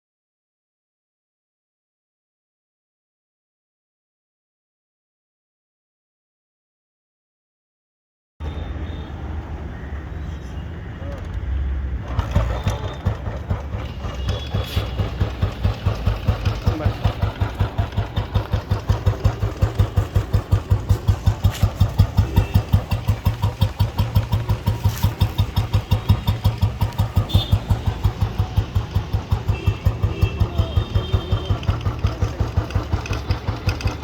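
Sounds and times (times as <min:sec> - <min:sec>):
motorcycle engine idling: 0:12.0 - 0:34.0.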